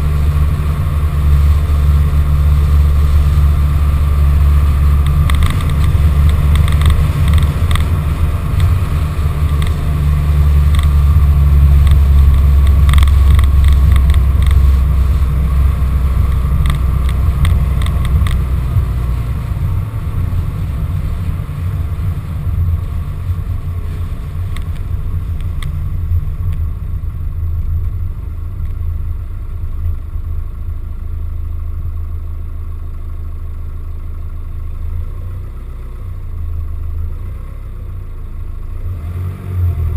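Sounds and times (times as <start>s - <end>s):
van engine and road rumble: 0.0s - 39.9s
knocks and clatter: 5.0s - 9.9s.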